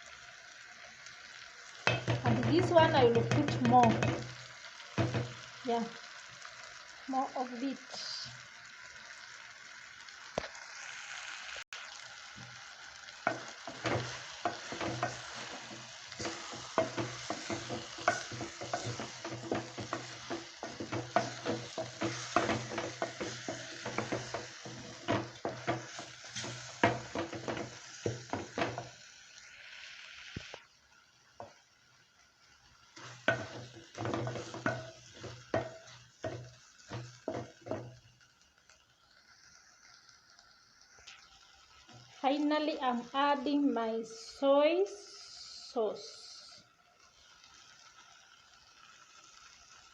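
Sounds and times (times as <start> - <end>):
chicken sizzling in a pot: 0.0 - 49.9
spoon scraping and knocking pot: 1.9 - 4.4, 5.0 - 5.4, 13.3 - 28.9, 33.0 - 38.0.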